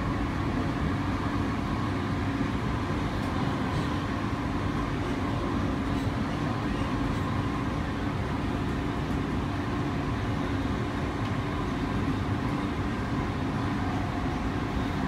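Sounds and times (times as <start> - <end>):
faint constant hum: 0.0 - 15.0
train rumble from inside carriage: 0.0 - 15.0.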